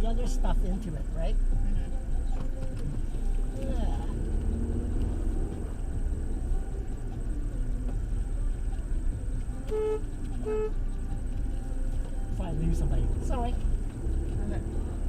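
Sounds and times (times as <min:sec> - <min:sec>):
car engine running: 0:00.0 - 0:15.0
car horn honks: 0:09.6 - 0:10.9.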